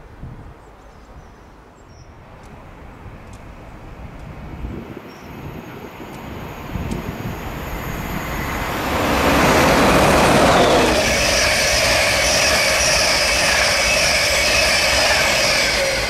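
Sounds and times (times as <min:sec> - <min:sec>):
electric train approaching: 0:04.4 - 0:16.0.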